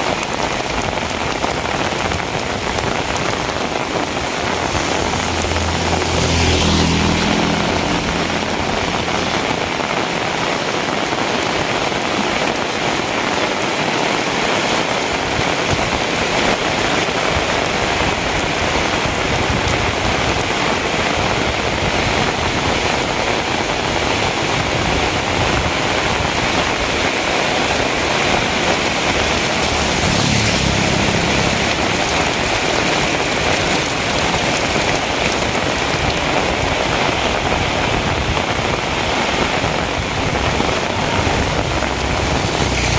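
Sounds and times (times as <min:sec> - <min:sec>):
heavy rain: 0:00.0 - 0:42.9
vehicle engine passing: 0:02.4 - 0:11.1, 0:21.5 - 0:37.3, 0:38.2 - 0:42.9.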